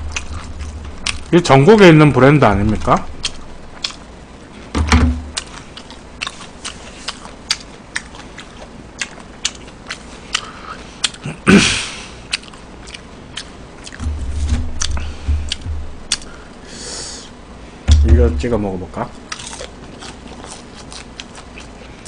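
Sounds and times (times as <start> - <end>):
person chewing crispy food: 0.0 - 1.4, 3.1 - 4.7, 5.3 - 11.4, 12.0 - 14.0, 14.8 - 16.6, 19.2 - 22.0
low thumps: 4.7 - 5.4, 13.9 - 16.4, 17.8 - 18.8.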